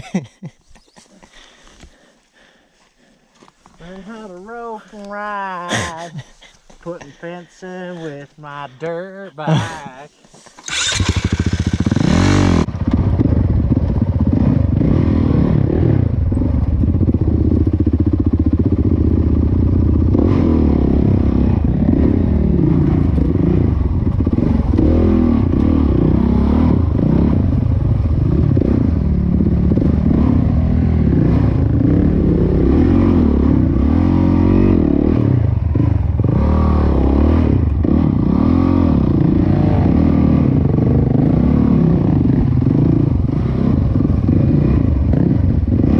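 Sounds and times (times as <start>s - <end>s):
dirt bike engine revving: 10.6s - 45.9s.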